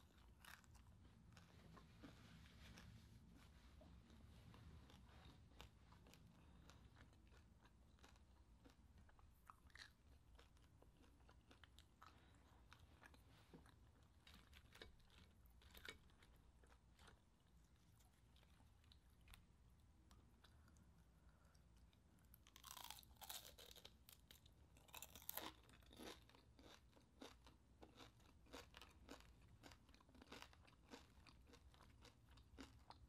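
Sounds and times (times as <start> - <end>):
chewing crispy food: 0.0 - 33.0.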